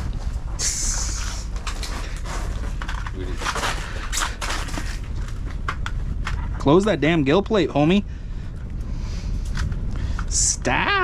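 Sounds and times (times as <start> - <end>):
rustling hiss: 0.0 - 4.9
steady low rumble: 0.0 - 11.0
handling knocks and clicks: 1.6 - 6.7.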